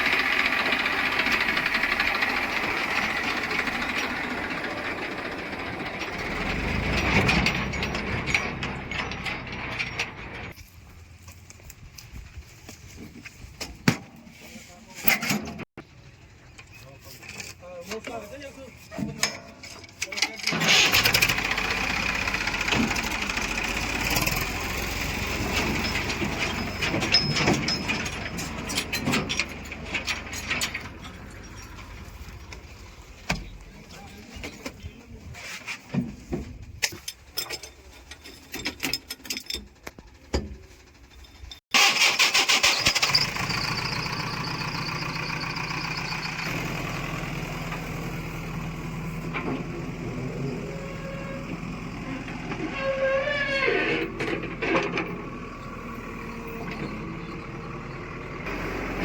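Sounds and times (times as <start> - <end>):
diesel engines of farm machinery: 0.0 - 59.0.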